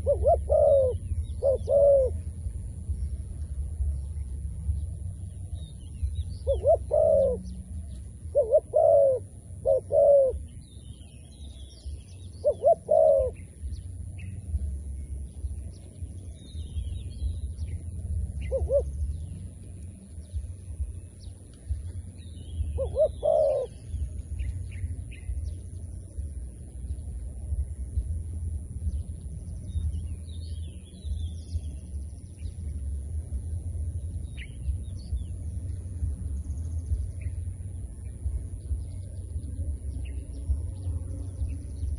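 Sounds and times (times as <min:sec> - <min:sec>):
dove cooing: 0:00.0 - 0:02.6, 0:06.2 - 0:10.6, 0:12.2 - 0:14.8, 0:17.5 - 0:19.6, 0:22.6 - 0:25.5
low rumble: 0:00.0 - 0:41.9
small birds chirping: 0:00.0 - 0:41.9.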